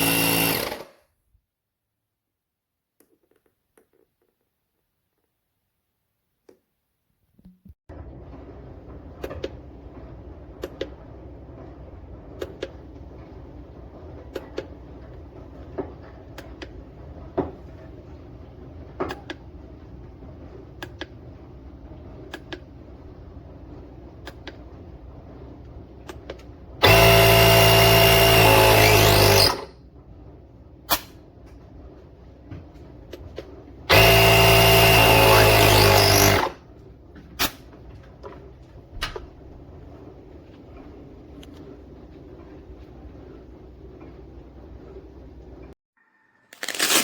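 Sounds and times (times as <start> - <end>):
electric air compressor running: 0.0 - 1.0, 26.8 - 29.7, 33.9 - 36.6.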